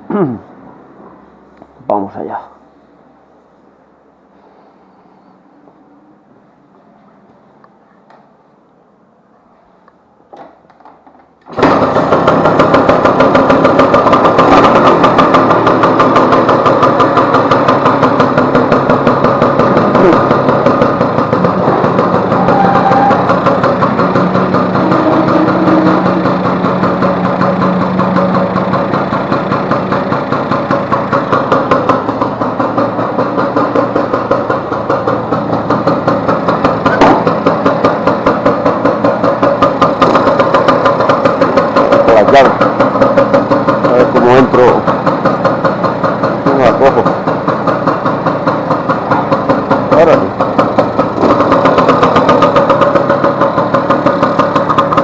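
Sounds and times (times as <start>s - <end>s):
scooter engine starting and idling: 9.7s - 55.0s.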